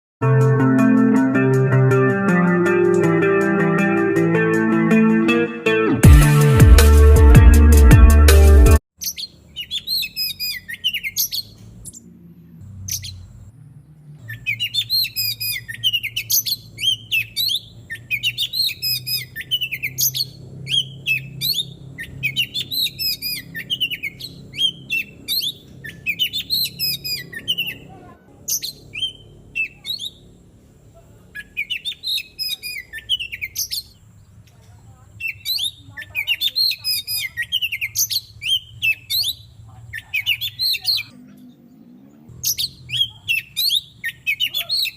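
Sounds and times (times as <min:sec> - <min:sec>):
bird singing whistled phrases: 0:09.0 - 0:12.0, 0:14.2 - 0:27.9, 0:28.5 - 0:30.2, 0:31.3 - 0:34.0, 0:35.2 - 0:41.2, 0:42.4 - 0:44.9.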